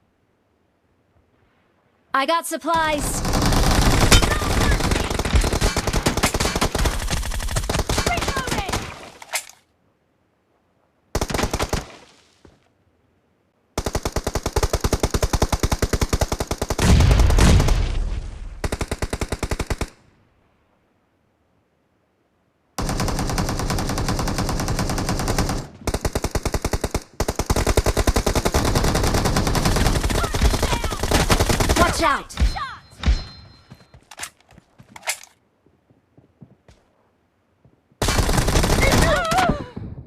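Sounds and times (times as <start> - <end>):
video game automatic gunfire: 2.9 - 8.9, 22.8 - 32.1, 38.0 - 39.4.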